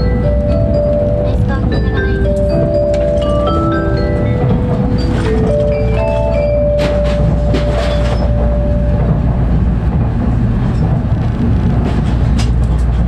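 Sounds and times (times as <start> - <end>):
announcement chime: 0.0 - 9.3
train running rumble: 0.0 - 13.0.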